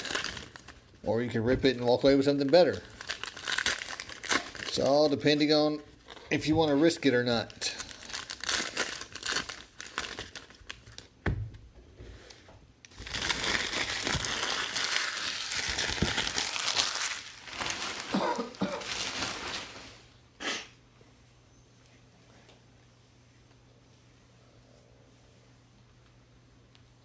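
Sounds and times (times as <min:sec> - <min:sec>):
plastic wrappers crinkling: 0:00.0 - 0:11.2, 0:12.9 - 0:20.1.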